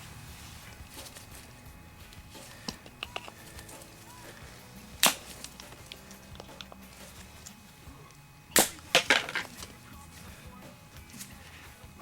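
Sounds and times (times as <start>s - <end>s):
hard objects knocking and clattering: 2.4s - 3.9s, 5.2s - 7.2s, 8.9s - 9.7s.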